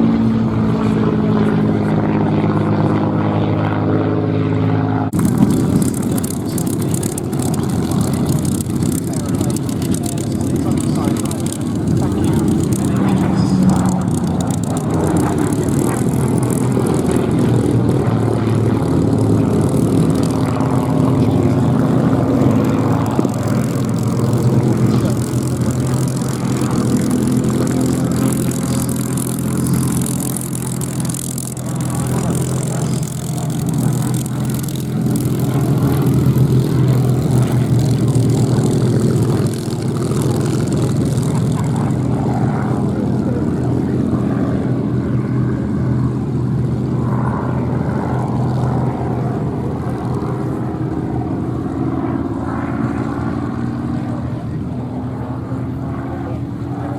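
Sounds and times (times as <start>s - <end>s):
airplane piston engine drone: 0.0s - 56.9s.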